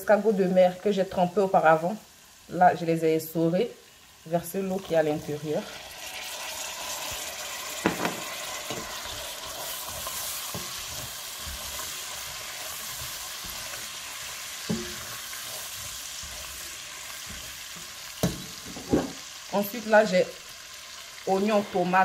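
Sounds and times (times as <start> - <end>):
food sizzling in hot oil: 0.0 - 22.0
spatula knocking on pot: 7.8 - 9.0, 14.6 - 19.2.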